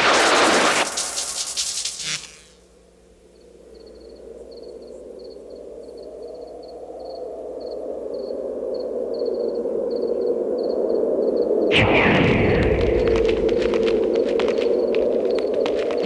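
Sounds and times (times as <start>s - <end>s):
crickets chirping: 0.1s - 11.8s, 12.8s - 16.0s.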